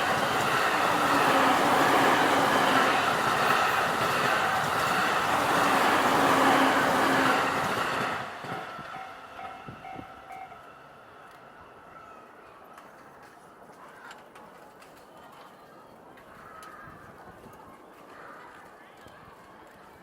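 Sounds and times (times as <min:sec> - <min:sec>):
level-crossing warning bell: 0:00.0 - 0:11.6
electric train running past: 0:00.0 - 0:14.2.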